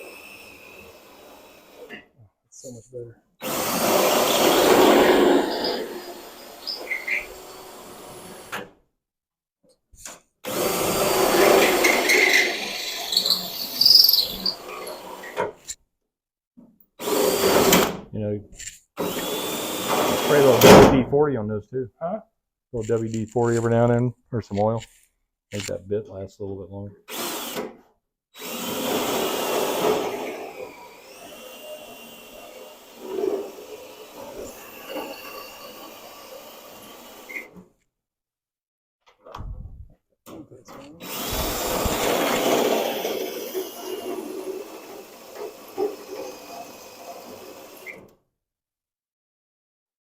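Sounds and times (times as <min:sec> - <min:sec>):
drill boring into sheet metal: 0:00.0 - 0:01.9, 0:03.4 - 0:08.6, 0:10.4 - 0:15.4, 0:17.0 - 0:17.9, 0:19.0 - 0:20.8, 0:27.1 - 0:27.7, 0:28.4 - 0:37.5, 0:41.0 - 0:48.0
high squeal of drill bit: 0:03.4 - 0:08.4, 0:10.5 - 0:15.4, 0:28.4 - 0:37.6, 0:41.0 - 0:48.0.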